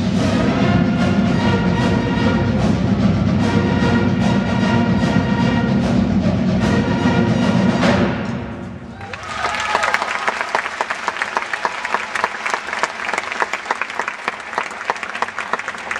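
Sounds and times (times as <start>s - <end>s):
brass playing: 0.0s - 8.1s.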